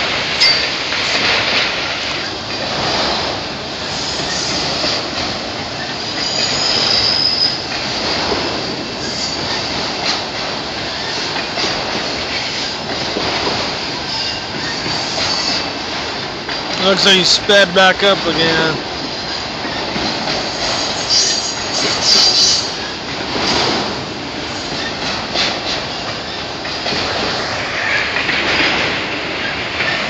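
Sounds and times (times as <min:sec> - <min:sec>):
train wheels on rails: 0:00.0 - 0:30.0
high wheel squeal: 0:05.8 - 0:07.7, 0:20.5 - 0:22.9.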